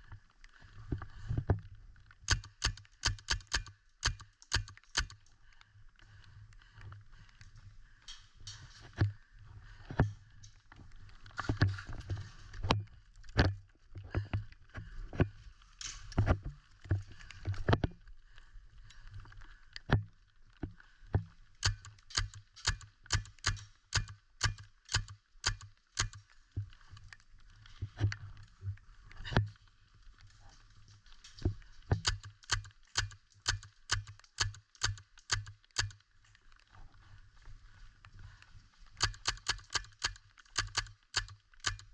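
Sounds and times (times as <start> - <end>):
clothing and gear rustling: 8.5 - 13.0.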